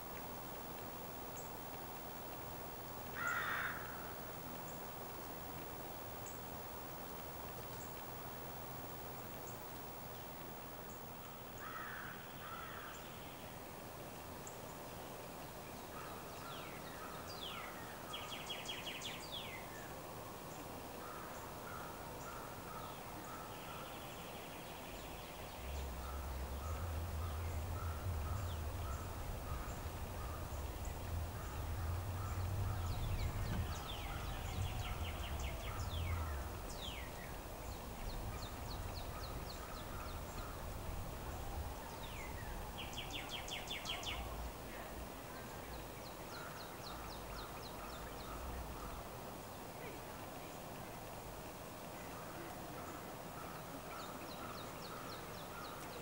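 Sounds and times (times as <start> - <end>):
wild birds chirping: 0.0 - 56.0
low rumble: 25.2 - 43.4.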